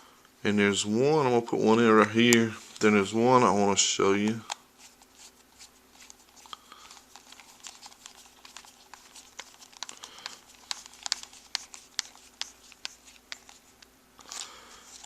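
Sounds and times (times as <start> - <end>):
faint steady hum: 0.0 - 15.0
small screws and plastic parts rattling: 6.0 - 13.6.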